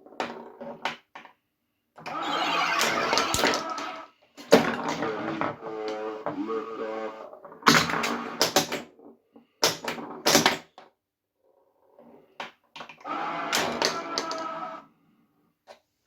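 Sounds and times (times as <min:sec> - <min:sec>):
electronic game sound effect: 0:02.1 - 0:03.9.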